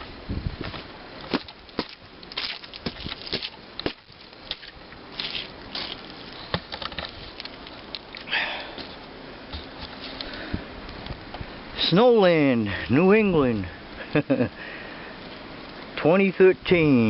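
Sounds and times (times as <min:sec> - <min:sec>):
rustle: 0:00.0 - 0:16.2
footsteps crunching in snow: 0:00.6 - 0:06.4.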